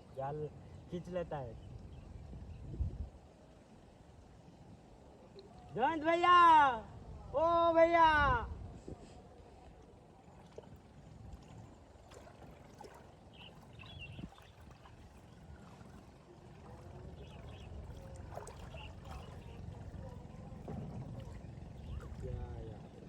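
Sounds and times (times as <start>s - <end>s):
light water sounds: 0.0s - 6.8s, 8.6s - 23.0s
faint distant voices: 14.8s - 23.0s.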